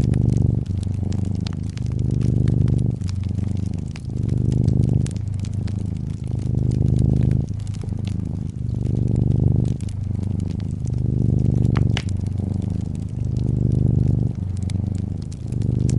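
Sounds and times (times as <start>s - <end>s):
cat purring: 0.0s - 15.9s
wood fire crackling: 0.0s - 15.9s.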